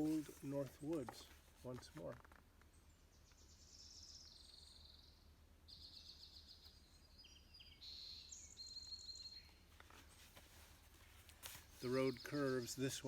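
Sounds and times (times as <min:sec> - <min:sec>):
songbird trilling faintly: 0:02.7 - 0:09.7.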